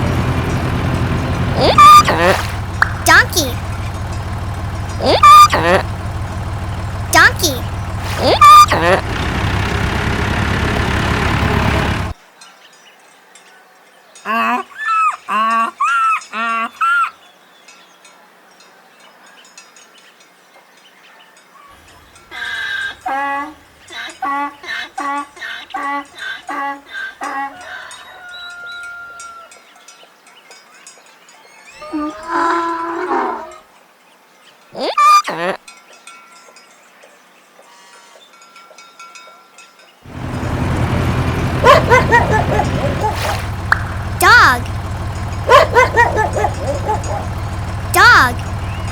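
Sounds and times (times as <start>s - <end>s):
tractor engine rumbling: 0.0s - 12.2s, 40.1s - 48.9s
donkey braying: 0.6s - 9.8s, 22.3s - 28.0s, 31.8s - 33.6s, 34.8s - 35.6s, 40.1s - 48.9s
dog barking: 41.6s - 44.0s, 45.4s - 47.4s.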